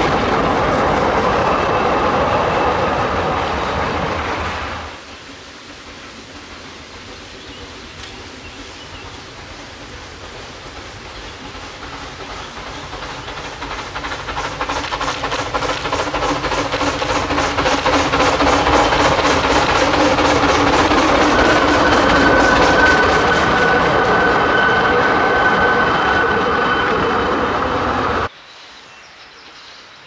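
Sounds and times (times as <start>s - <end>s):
train rushing noise: 0.0s - 28.3s
train wheels clattering: 0.0s - 28.3s.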